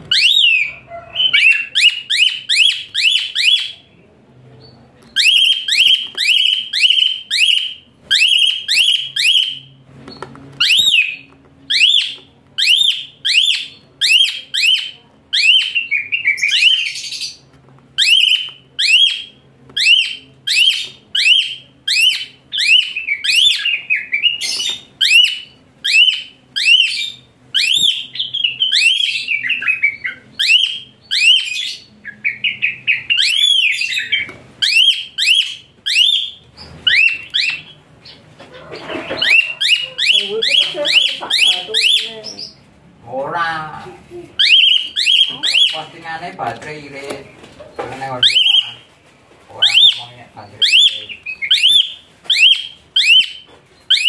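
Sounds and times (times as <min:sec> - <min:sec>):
starling shrill calls: 0:00.1 - 0:03.7, 0:10.6 - 0:17.4, 0:18.0 - 0:38.2, 0:38.8 - 0:42.6, 0:44.4 - 0:46.0, 0:48.1 - 0:48.8, 0:49.6 - 0:54.0.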